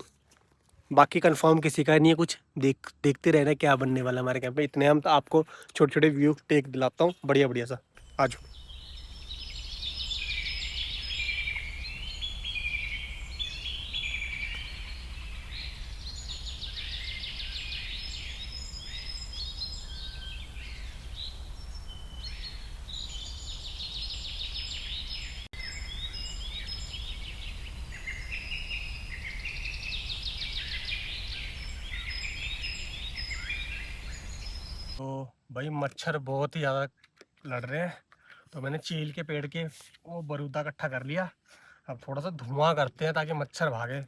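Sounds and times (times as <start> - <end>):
birds singing and chirping: 8.0 - 35.0.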